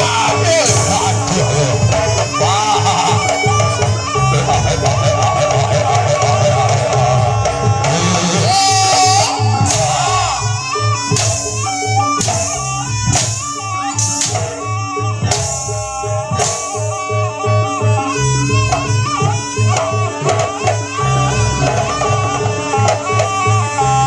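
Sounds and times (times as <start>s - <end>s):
drums beating: 0.0s - 24.0s
wavering melody: 0.0s - 24.0s
sharp crashing strikes: 11.0s - 17.0s.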